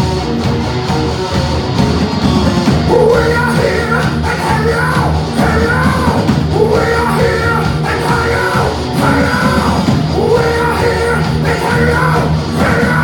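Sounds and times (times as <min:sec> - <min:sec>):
heavy metal band playing: 0:00.0 - 0:13.0
yelled vocals: 0:02.6 - 0:13.0.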